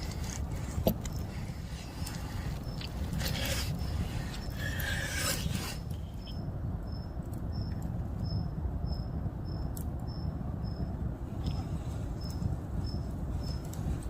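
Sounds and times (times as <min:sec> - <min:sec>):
scraping or rubbing: 0:00.0 - 0:06.3
insect chirping: 0:00.0 - 0:10.9, 0:12.2 - 0:13.7.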